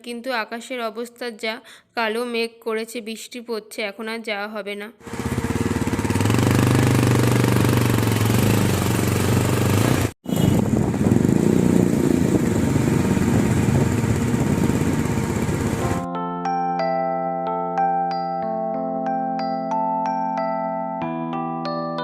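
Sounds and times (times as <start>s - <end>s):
motorcycle engine running: 5.0s - 16.1s
wind noise on microphone: 10.2s - 16.0s.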